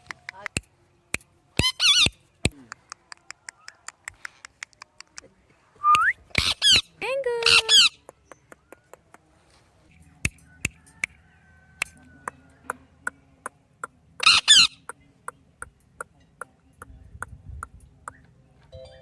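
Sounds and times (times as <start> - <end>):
parrot squawking: 1.6 - 2.2, 6.3 - 6.8, 7.4 - 7.9, 14.2 - 14.8.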